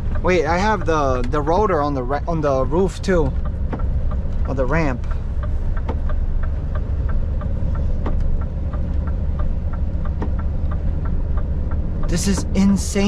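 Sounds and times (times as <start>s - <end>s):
road noise: 0.0s - 13.0s
truck engine drone: 0.0s - 13.0s.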